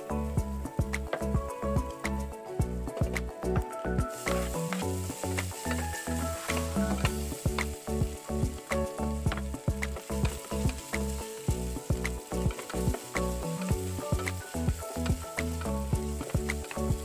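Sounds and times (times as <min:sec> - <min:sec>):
background music: 0:00.0 - 0:17.0
meat sizzling in hot oil: 0:04.1 - 0:08.7, 0:09.5 - 0:17.0.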